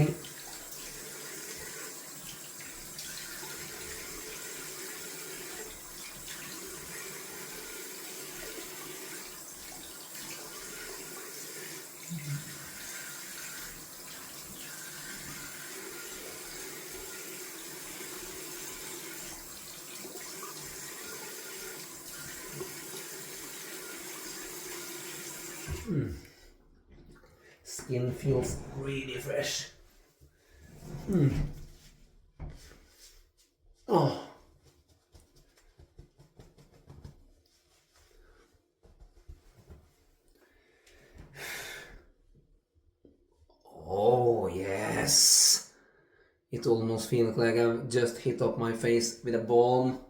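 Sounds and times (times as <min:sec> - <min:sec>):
water running from sink tap: 0:00.0 - 0:26.0.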